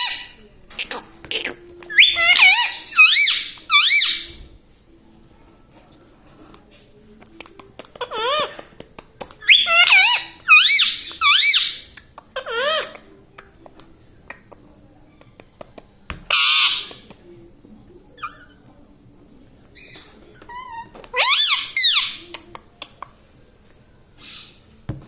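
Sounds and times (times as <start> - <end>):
parakeet calls wavering: 1.9 - 4.3, 9.5 - 11.8, 16.3 - 16.9, 19.8 - 22.2
parakeet harsh screech: 2.0 - 4.3.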